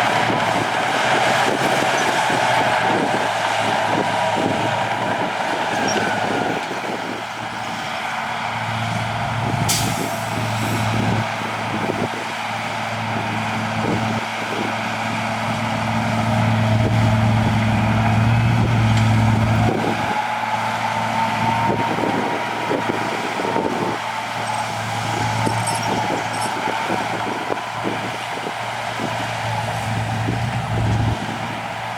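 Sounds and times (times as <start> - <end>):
heavy diesel engine under load: 0.0 - 31.9
knocks and clanks: 24.4 - 27.3.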